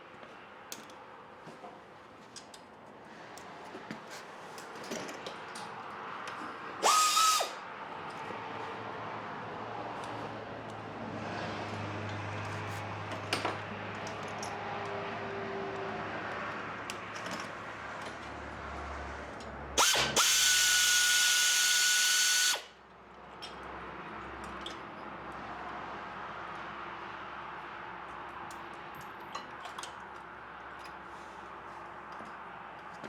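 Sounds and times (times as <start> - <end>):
cordless power drill running: 6.8 - 7.6, 19.8 - 22.7.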